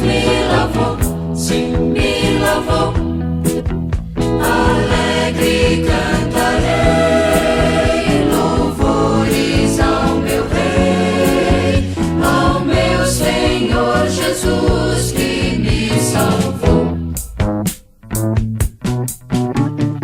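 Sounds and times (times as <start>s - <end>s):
vocal group singing in harmony: 0.0s - 3.2s, 4.2s - 17.2s
band with drum beat: 0.0s - 20.0s.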